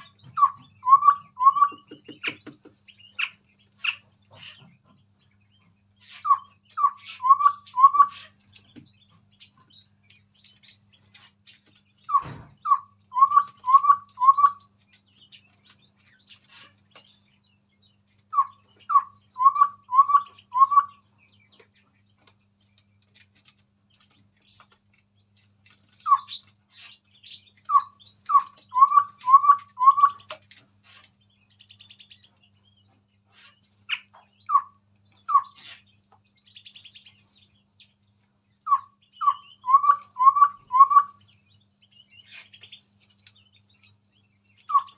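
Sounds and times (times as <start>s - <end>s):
faint bird chirping: 0.0s - 44.9s
bird whistling falling notes: 38.7s - 41.2s.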